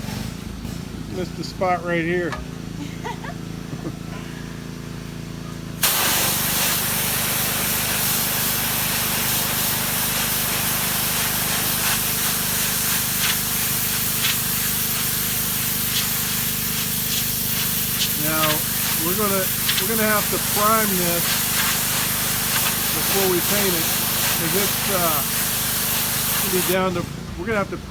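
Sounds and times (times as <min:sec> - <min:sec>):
pressure washer water jet hissing: 0:05.8 - 0:27.6.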